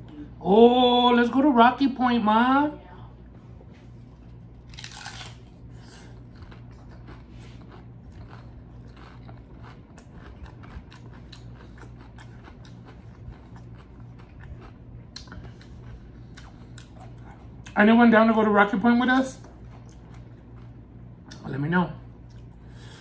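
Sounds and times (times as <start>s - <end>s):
steady low hum: 0.0s - 23.0s
chewing crunchy food: 3.6s - 17.8s, 19.0s - 21.5s, 22.1s - 22.9s.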